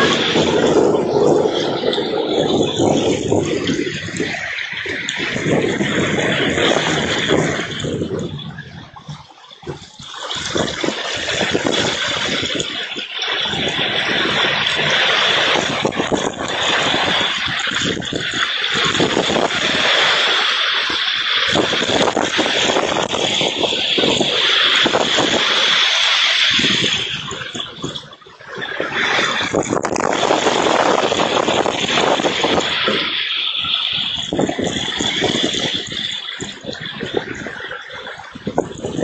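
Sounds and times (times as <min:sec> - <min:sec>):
heavy rain pouring: 0:00.0 - 0:39.0.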